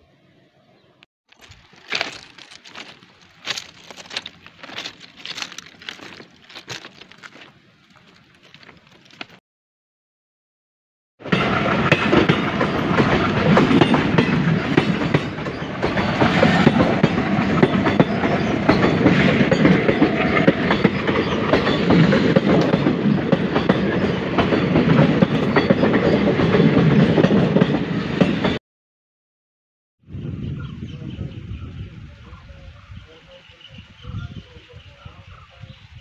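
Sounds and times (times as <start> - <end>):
train wheels clattering: 1.4 - 9.4, 11.3 - 28.6.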